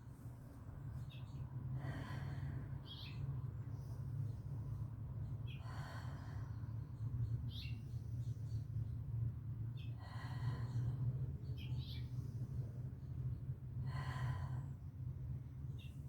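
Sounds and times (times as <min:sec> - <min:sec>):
steady low hum: 0:00.0 - 0:16.0
slow breathing: 0:01.7 - 0:02.8, 0:05.6 - 0:06.9, 0:10.0 - 0:11.4, 0:13.8 - 0:15.4.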